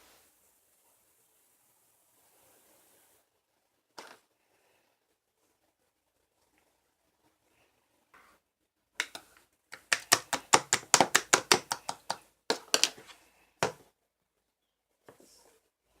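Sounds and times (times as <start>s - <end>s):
rapid sharp taps: 9.0s - 12.9s.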